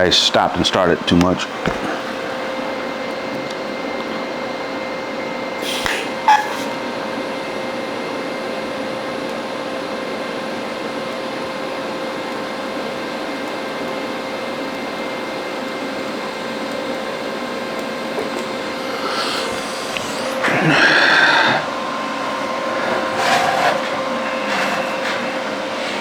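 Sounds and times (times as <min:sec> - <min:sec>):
welding arc hissing: 0:05.6 - 0:07.1, 0:18.0 - 0:26.0.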